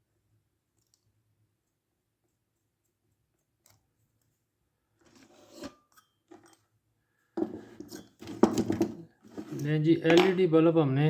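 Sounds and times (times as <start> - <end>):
tool scraping on workbench: 5.1 - 5.9, 7.4 - 9.7.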